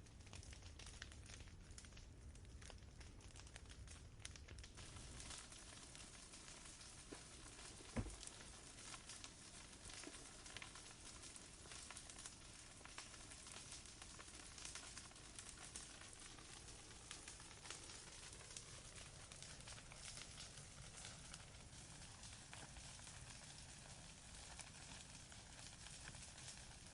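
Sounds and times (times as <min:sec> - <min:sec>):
campfire crackling: 0:00.0 - 0:26.9.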